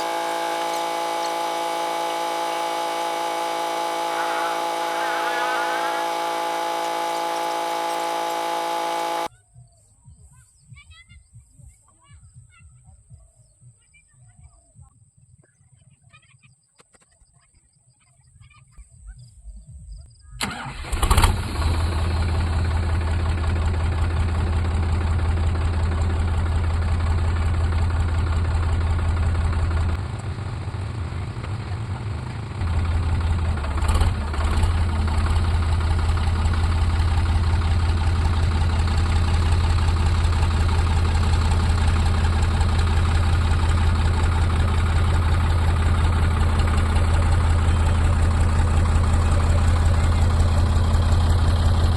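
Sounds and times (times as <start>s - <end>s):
tractor diesel engine running: 0.0s - 9.3s, 20.4s - 51.9s.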